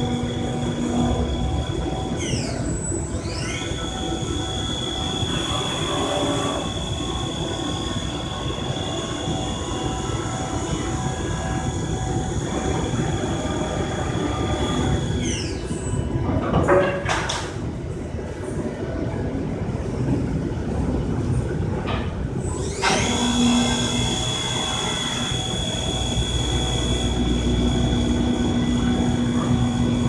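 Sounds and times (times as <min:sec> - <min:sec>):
machine tool whine: 0:00.0 - 0:16.2, 0:22.4 - 0:30.0
machining rumble: 0:00.0 - 0:30.0.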